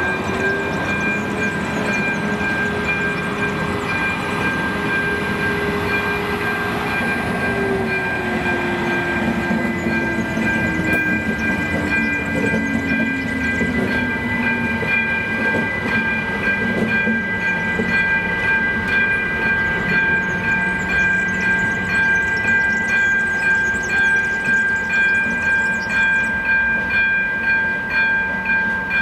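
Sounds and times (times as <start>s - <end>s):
crossing warning bell ringing: 0.0s - 29.0s
shunting locomotive: 0.0s - 29.0s
train wheels rumbling and clacking: 0.0s - 29.0s.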